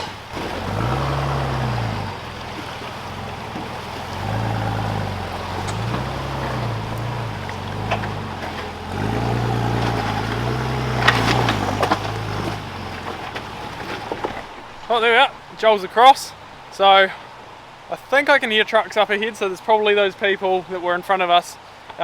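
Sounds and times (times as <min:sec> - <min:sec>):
off-road vehicle engine revving: 0:00.0 - 0:14.6
rushing water: 0:00.0 - 0:22.0
sharp knocks: 0:01.6 - 0:14.4.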